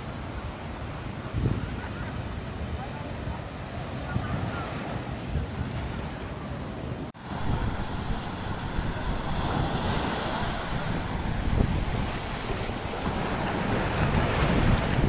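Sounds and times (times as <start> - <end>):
sea surf: 0.0 - 15.0
wind buffeting microphone: 7.2 - 15.0.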